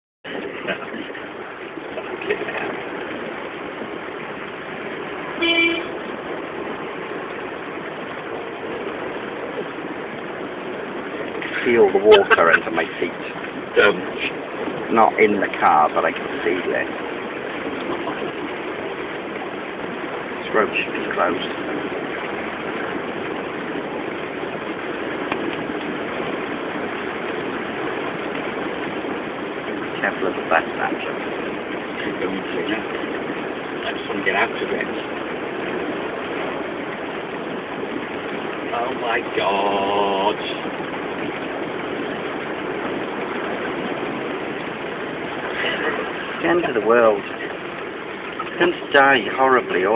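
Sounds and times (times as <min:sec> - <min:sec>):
road noise: 0:00.2 - 0:49.9
rush of water around car: 0:00.2 - 0:49.9
vehicle horn toot: 0:05.4 - 0:06.1.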